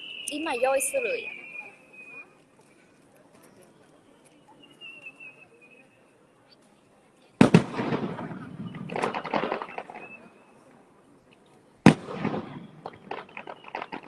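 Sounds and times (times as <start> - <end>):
firework crackling: 0.0 - 2.1, 7.4 - 10.3, 11.8 - 14.0
firework bang: 7.4 - 10.2, 11.8 - 14.0.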